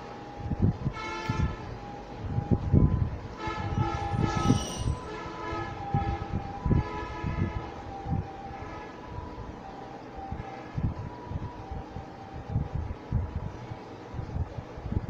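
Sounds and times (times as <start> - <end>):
horn blasting a chord: 3.4 - 7.6.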